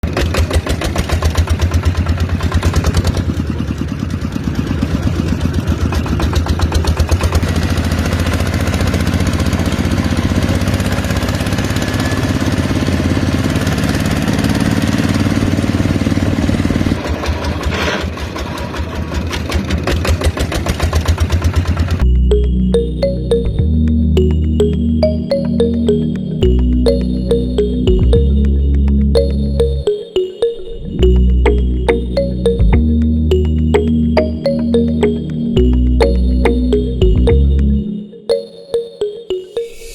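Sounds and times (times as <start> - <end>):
small engine running: 0.1 - 22.0.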